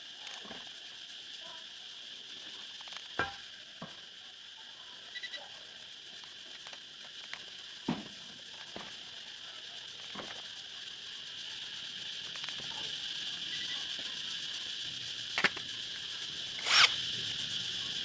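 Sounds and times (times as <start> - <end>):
steady high hiss: 0.0 - 18.0
clicks of small parts handled: 15.4 - 15.6.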